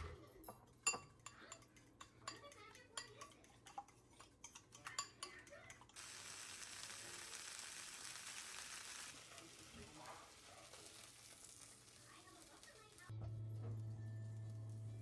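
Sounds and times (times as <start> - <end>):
steady cooking hiss: 0.0 - 15.0
utensils clicking against cookware: 0.1 - 7.0.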